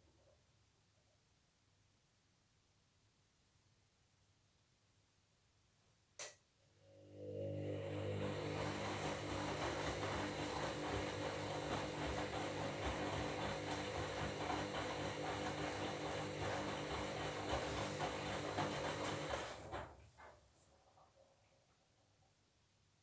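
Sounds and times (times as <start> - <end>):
washing machine tumbling: 7.3 - 20.4.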